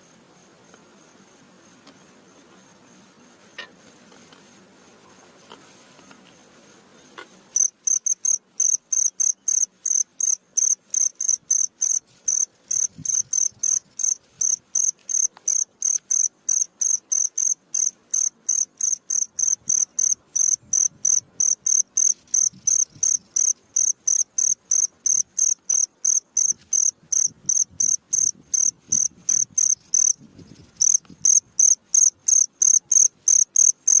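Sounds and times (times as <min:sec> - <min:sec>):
cricket chirping: 0:07.2 - 0:34.0.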